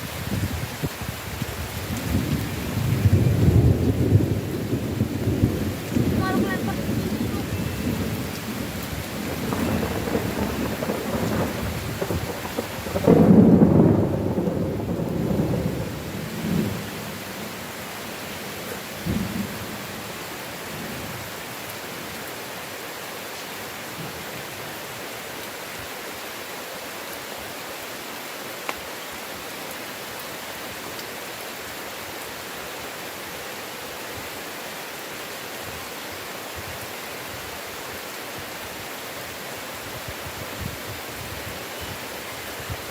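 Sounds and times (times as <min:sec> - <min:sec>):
heavy rain hissing: 0:00.0 - 0:42.9
thunder rumbling: 0:00.1 - 0:17.6.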